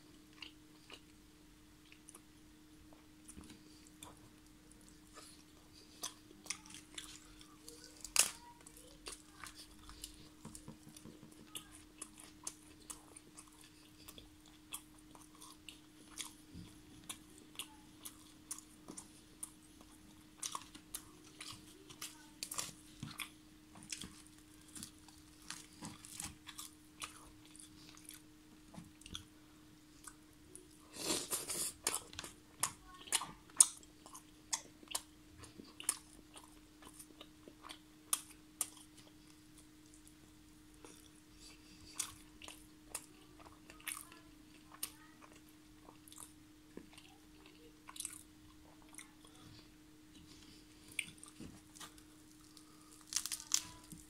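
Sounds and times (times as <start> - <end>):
faint steady hum: 0.0 - 54.0
chewing food: 0.1 - 1.2, 1.8 - 54.0.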